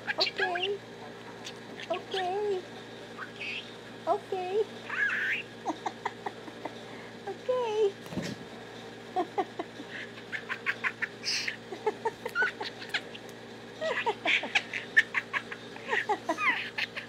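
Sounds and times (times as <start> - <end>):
budgerigar chattering and warbling: 0.0 - 2.4, 3.2 - 3.8, 4.8 - 6.2, 10.1 - 11.7, 12.3 - 13.3, 13.9 - 17.0.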